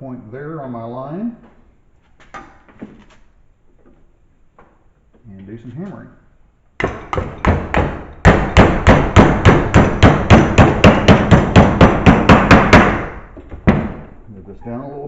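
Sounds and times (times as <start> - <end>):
hammer striking sheet metal: 6.8 - 14.0.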